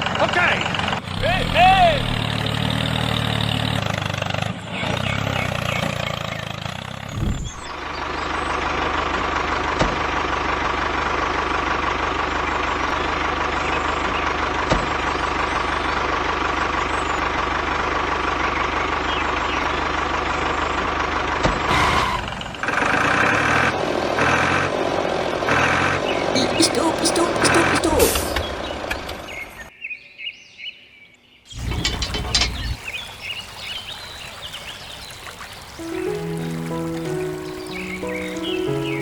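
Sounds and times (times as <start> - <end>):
model tractor engine running: 7.7 - 28.2, 31.6 - 32.8.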